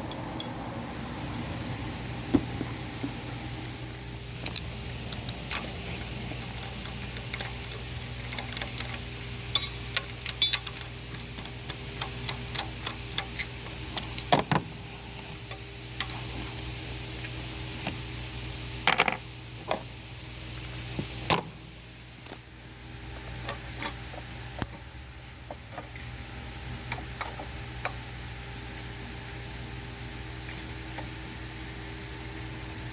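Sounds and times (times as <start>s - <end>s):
steady low hum: 0.0s - 32.9s
metallic clicks and clinks: 4.4s - 14.3s.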